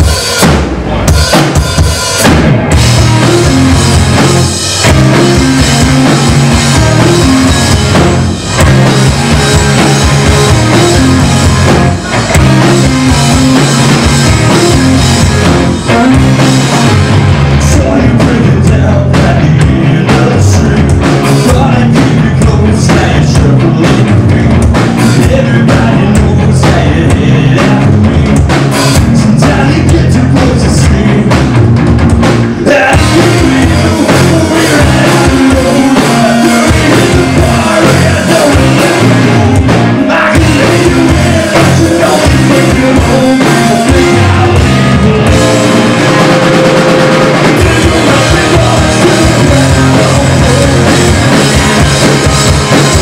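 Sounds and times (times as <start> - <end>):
live rock band: 0.0 - 53.0
person singing: 17.5 - 24.5, 25.1 - 28.4, 29.0 - 31.4, 32.6 - 51.9.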